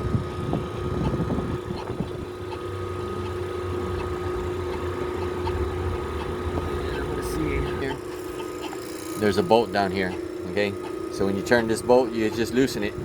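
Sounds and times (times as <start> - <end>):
machine humming with thin whine: 0.0 - 13.0.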